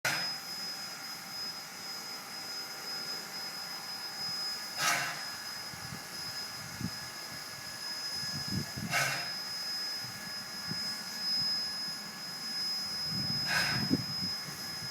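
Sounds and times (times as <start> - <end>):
steam locomotive hissing: 2.1 - 14.9
steam gushing: 4.8 - 5.6, 6.4 - 11.2, 13.3 - 14.9.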